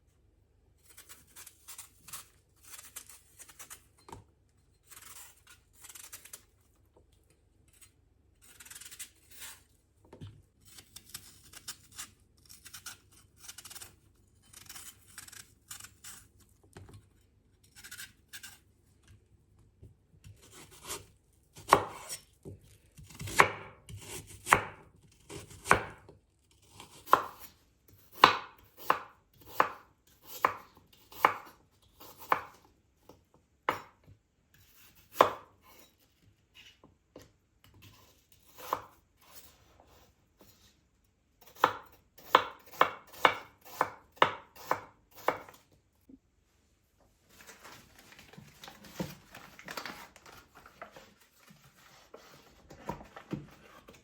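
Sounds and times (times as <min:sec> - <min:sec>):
knife chopping on cutting board: 0:21.6 - 0:22.2, 0:23.1 - 0:26.0, 0:26.9 - 0:27.5, 0:28.1 - 0:32.6, 0:34.7 - 0:35.8, 0:41.4 - 0:45.6.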